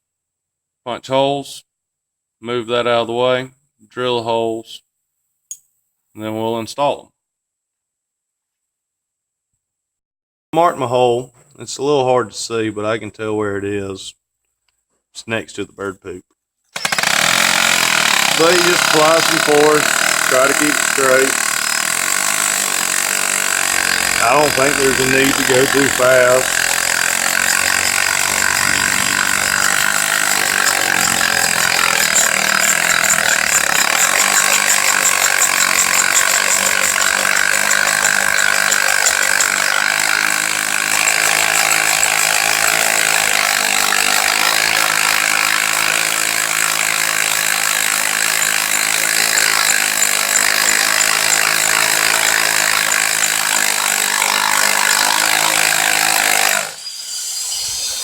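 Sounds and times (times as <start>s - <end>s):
hammer drill boring into concrete: 16.7s - 58.0s.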